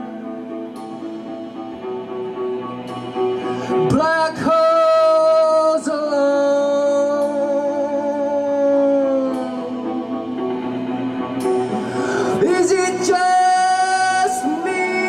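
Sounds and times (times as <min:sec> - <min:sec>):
guitar: 0:00.0 - 0:15.0
man singing: 0:03.7 - 0:10.5, 0:12.0 - 0:15.0.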